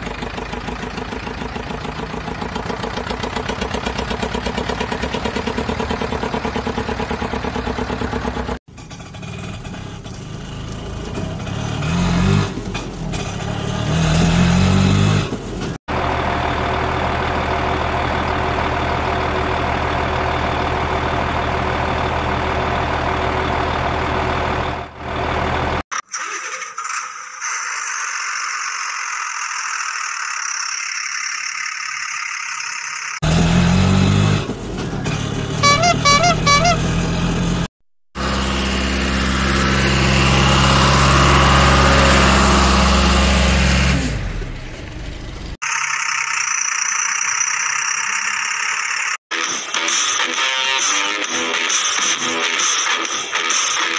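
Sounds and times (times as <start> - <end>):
vehicle engine running: 0.0 - 25.9, 30.4 - 49.2
short horn-like tones: 35.6 - 36.9.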